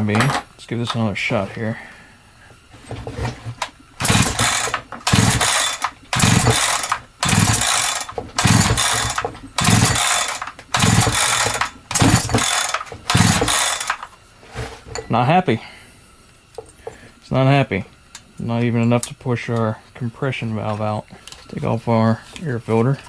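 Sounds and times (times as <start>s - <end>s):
chainsaw recoil starter pulls: 0.0s - 1.1s, 2.8s - 14.2s.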